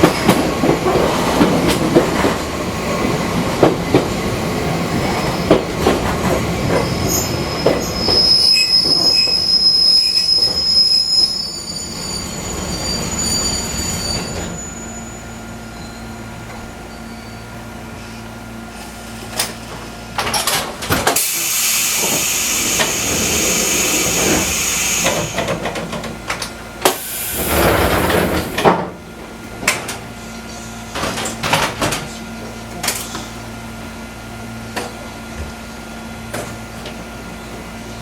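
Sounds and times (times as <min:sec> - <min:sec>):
compressed air hiss: 0:21.2 - 0:25.5, 0:26.9 - 0:28.0.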